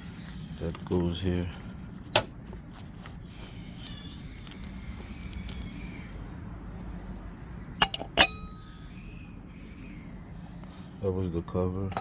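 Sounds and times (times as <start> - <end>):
steady low hum: 0.0 - 12.0
metal tools clinking: 3.8 - 5.7, 7.8 - 8.6
sharp metal clanks: 7.8 - 8.6.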